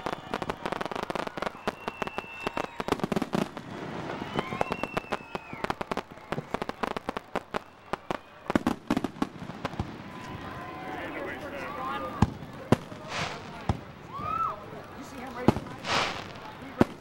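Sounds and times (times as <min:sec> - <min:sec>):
high firework whistles: 0:00.0 - 0:10.4, 0:12.0 - 0:14.6, 0:15.3 - 0:17.0
fireworks crackling and popping: 0:00.0 - 0:17.0.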